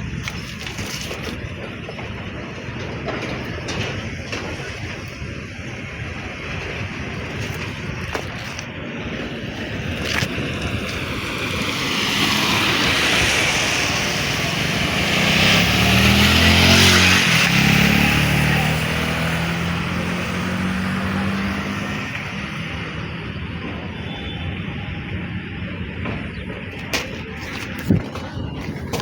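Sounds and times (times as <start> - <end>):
motor vehicle passing by: 10.1 - 23.2.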